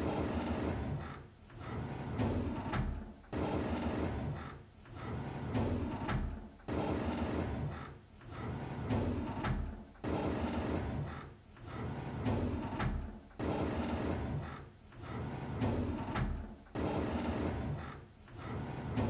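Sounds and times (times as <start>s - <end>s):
drawer sliding open: 18.4s - 19.0s.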